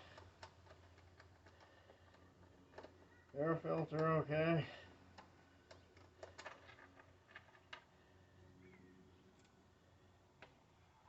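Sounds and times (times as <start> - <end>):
faint clicks and taps: 0.0 - 4.2, 5.1 - 7.9.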